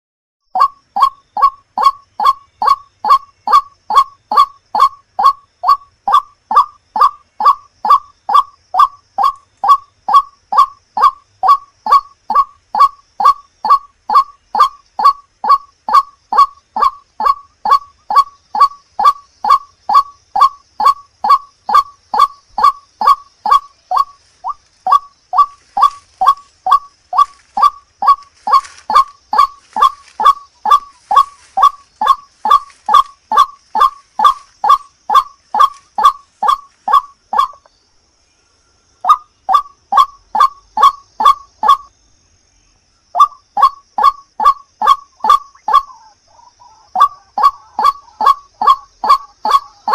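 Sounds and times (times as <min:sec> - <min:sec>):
waterhen calling harsh notes: 0:00.6 - 0:37.7, 0:43.2 - 0:49.9.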